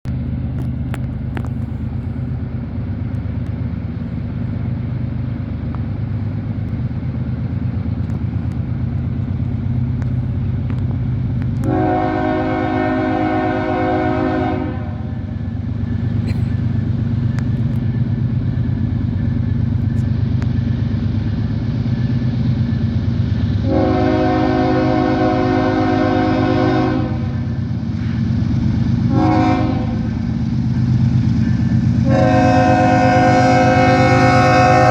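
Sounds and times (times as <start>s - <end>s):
diesel locomotives droning: 0.0s - 34.9s
train horn blasts: 11.6s - 15.2s, 23.6s - 27.4s, 29.1s - 30.1s, 32.0s - 34.9s.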